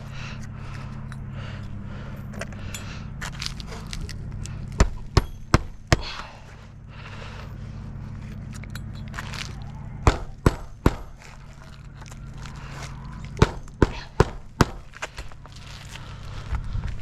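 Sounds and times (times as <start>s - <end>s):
steady low hum: 0.0s - 17.0s
hammer striking nails: 4.8s - 6.1s, 10.0s - 11.2s, 13.4s - 14.9s.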